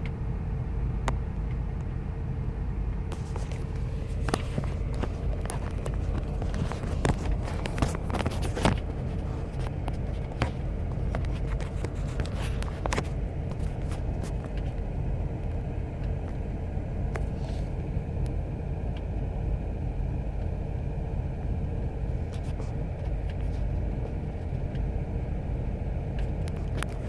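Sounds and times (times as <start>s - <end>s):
engine idling rough: 0.0s - 27.0s
sharp clicks and knocks: 2.9s - 16.4s.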